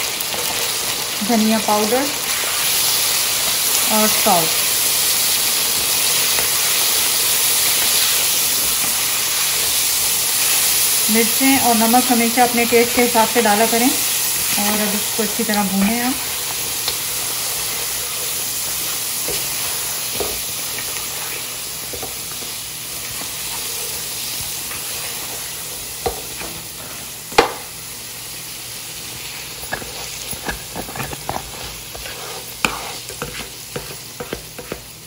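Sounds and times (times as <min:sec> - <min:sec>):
meat sizzling in oil: 0:00.0 - 0:35.0
spatula scraping and knocking pan: 0:14.4 - 0:27.6, 0:29.6 - 0:34.9.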